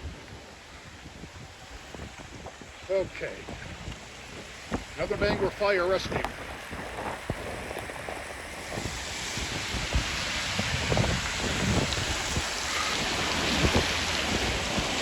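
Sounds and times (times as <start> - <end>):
heavy rain hiss: 0.0 - 15.0
wind knocking on microphone: 0.0 - 15.0.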